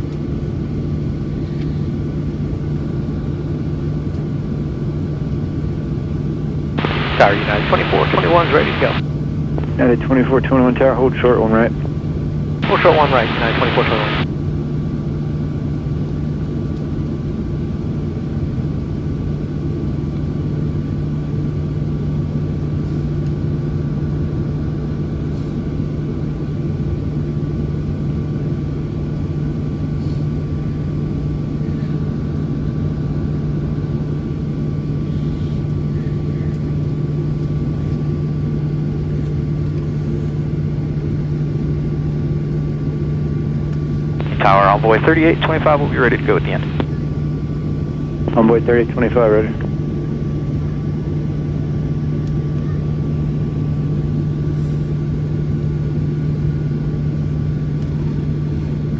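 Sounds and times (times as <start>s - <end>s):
airplane cabin drone: 6.8s - 9.0s, 9.6s - 14.2s, 44.1s - 47.2s, 48.2s - 50.2s
jet engine whine: 6.8s - 9.0s, 9.6s - 14.2s, 44.2s - 47.0s.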